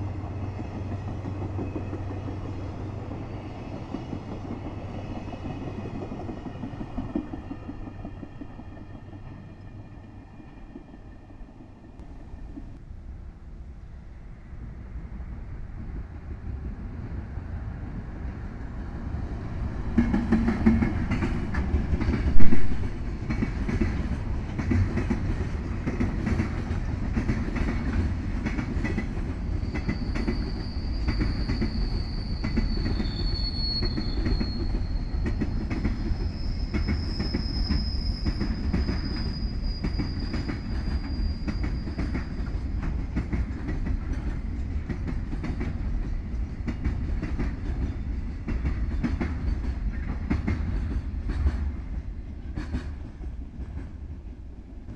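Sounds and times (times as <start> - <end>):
freight train rumble: 0.0 - 54.9
high wheel squeal: 29.4 - 42.6.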